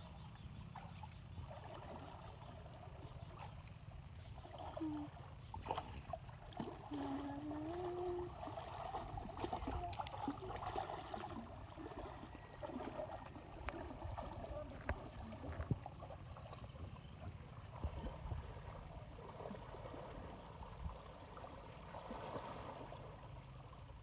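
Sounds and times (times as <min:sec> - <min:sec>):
river water splashing: 0:00.0 - 0:24.0
faint wavering held tone: 0:12.0 - 0:13.2.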